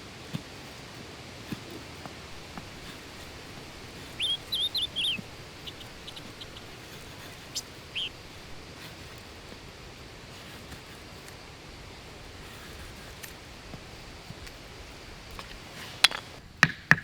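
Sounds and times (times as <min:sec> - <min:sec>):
steady background hiss: 0:00.0 - 0:17.0
bird chirping: 0:02.3 - 0:08.7.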